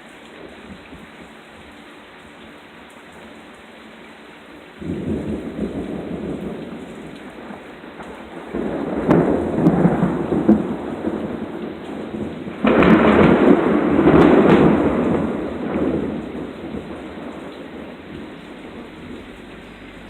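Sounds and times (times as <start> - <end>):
steady rain: 0.0 - 20.0
thunder clap: 4.8 - 20.0
thunder rumbling: 4.8 - 20.0.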